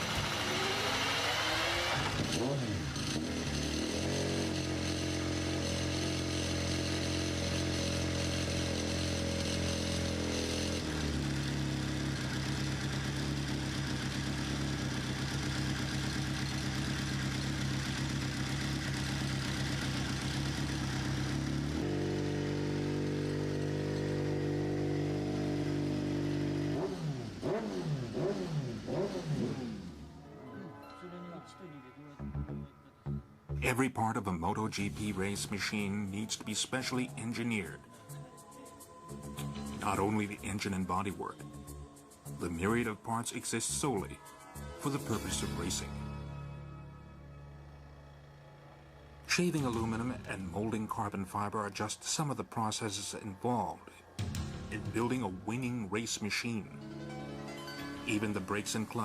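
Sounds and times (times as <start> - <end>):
motorcycle engine revving: 0.0 - 30.3, 44.8 - 51.9.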